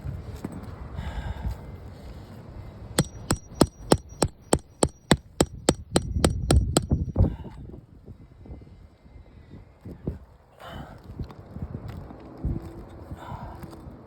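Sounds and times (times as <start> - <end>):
hammer striking metal pry tool: 3.0 - 7.1.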